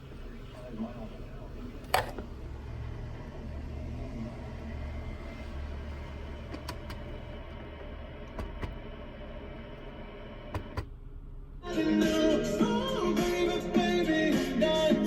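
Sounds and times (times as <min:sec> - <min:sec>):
steady low hum: 0:00.0 - 0:14.8
music from radio: 0:11.6 - 0:15.0.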